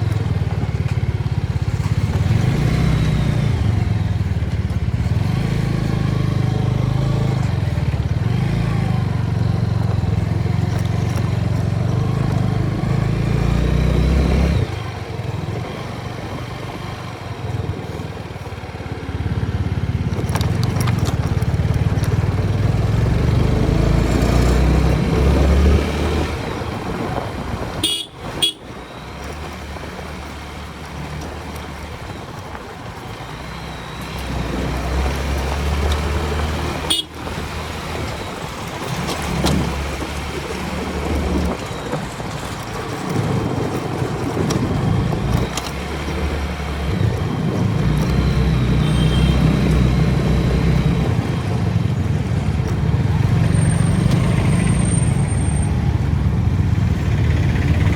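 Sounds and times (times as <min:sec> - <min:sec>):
motorcycle engine: 0:00.0 - 0:57.9
vehicle horns tooting: 0:27.7 - 0:28.8, 0:36.8 - 0:37.5, 0:48.7 - 0:49.7.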